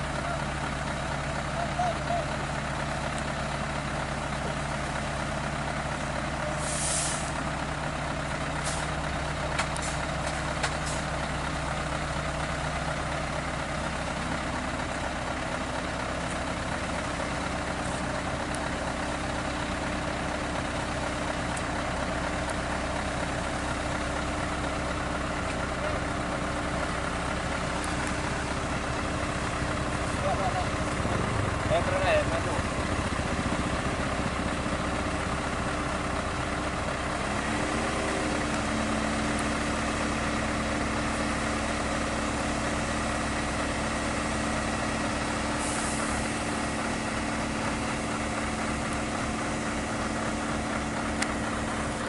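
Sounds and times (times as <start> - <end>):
diesel truck engine running: 0.0 - 52.0
air hiss: 6.6 - 7.4.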